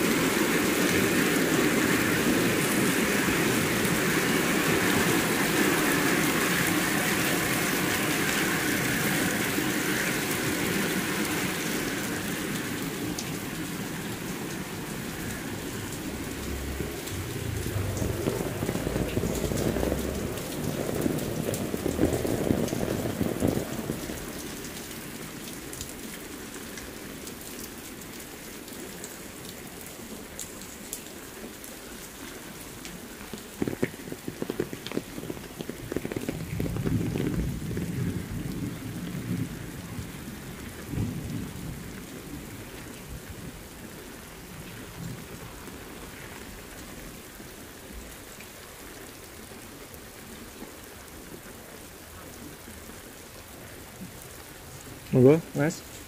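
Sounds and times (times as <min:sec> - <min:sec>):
heavy rain on concrete: 0:00.0 - 0:56.0
low rumble: 0:15.3 - 0:24.4.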